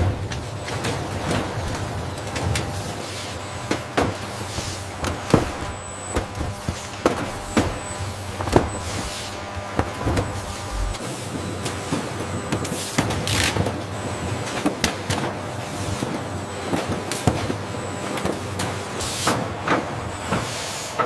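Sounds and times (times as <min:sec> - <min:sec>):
machinery humming: 0:00.0 - 0:12.5.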